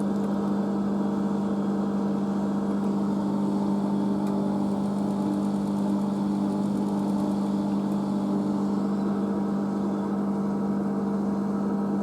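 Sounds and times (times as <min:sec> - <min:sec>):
washing machine spinning: 0:00.0 - 0:12.0.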